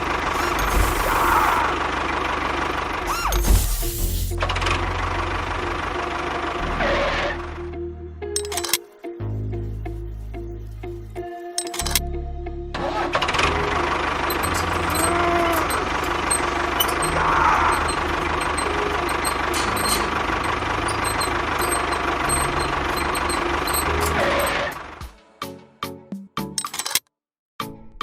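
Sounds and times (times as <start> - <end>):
small engine running: 0.0 - 7.6, 12.8 - 25.1.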